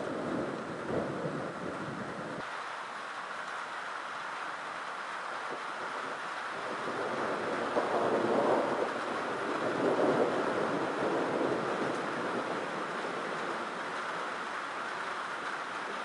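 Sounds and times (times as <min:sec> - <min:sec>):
rolling thunder: 0:00.0 - 0:02.4, 0:06.5 - 0:14.0.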